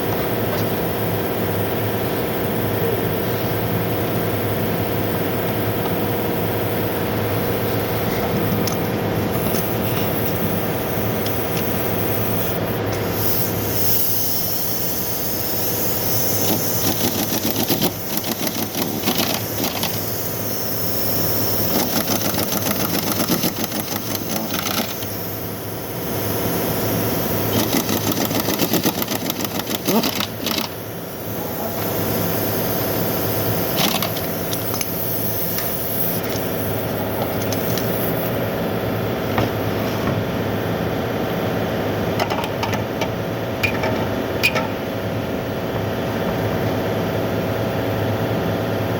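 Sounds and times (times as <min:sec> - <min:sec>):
rapid mechanical rattle: 0:00.0 - 0:38.4.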